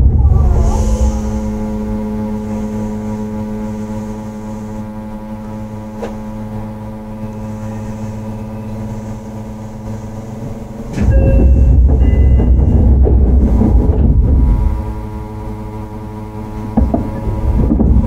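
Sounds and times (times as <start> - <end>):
deep rail rumble: 0.0 - 18.0
train hum: 0.0 - 18.0.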